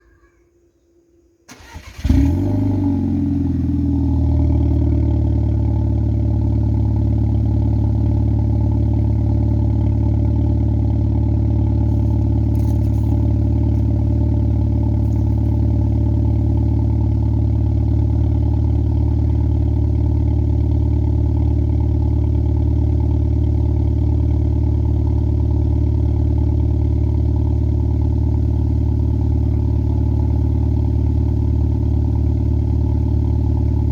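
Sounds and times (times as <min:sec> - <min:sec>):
starter motor cranking: 0:01.5 - 0:02.3
car engine starting and idling: 0:01.5 - 0:33.9.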